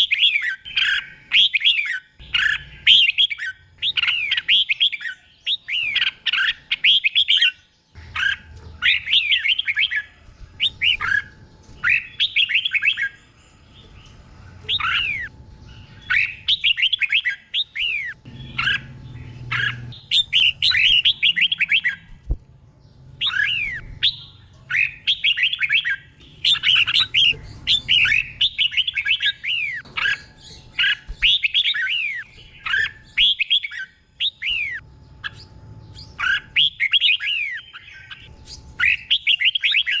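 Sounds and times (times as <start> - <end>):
bulbul singing whistled phrases: 14.7 - 22.2, 23.2 - 40.0.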